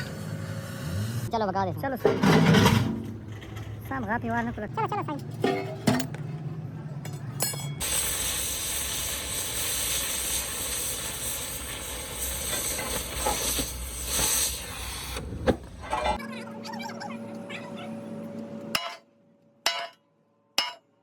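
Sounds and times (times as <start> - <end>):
loud steady hiss: 7.8 - 15.2.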